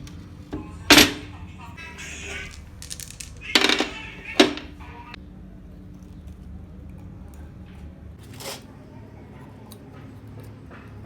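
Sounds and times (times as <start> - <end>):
metal parts knocking and clattering: 0.9 - 1.3, 2.3 - 4.8.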